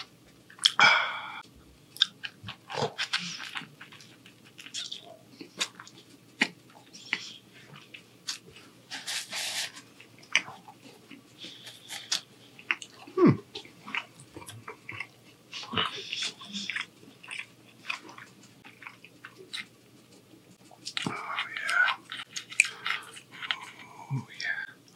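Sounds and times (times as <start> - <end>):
chewing crunchy toasted bread: 0.0 - 1.2, 1.9 - 24.9
low throat sound: 0.7 - 1.4.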